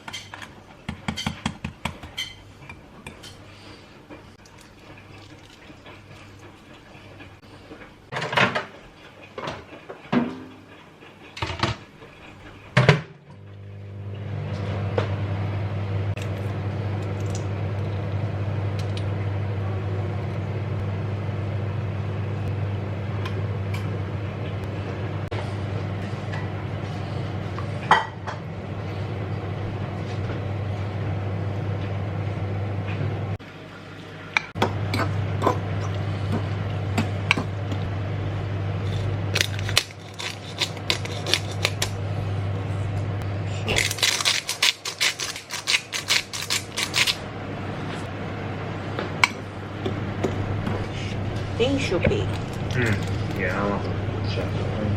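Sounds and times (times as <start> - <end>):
dishes and cutlery clinking: 0.0 - 3.4
kitchen appliance humming: 10.5 - 54.9.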